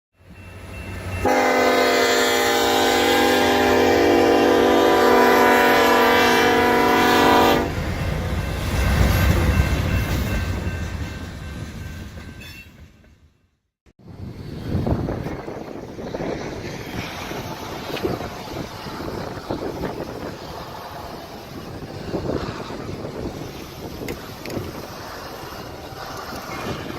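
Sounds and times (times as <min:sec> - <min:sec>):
train rumbling: 0:00.2 - 0:26.9
locomotive air horn: 0:01.2 - 0:07.8.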